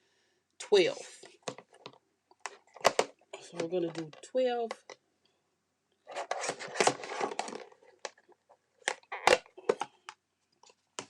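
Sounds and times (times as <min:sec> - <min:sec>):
paper rustling: 0:06.1 - 0:08.3.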